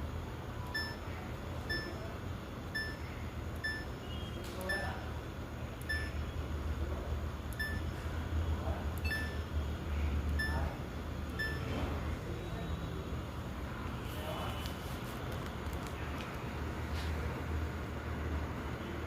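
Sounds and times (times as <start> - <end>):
washing machine beeping: 0.6 - 5.1, 5.8 - 6.5, 7.5 - 8.1, 9.0 - 9.6, 10.3 - 12.1.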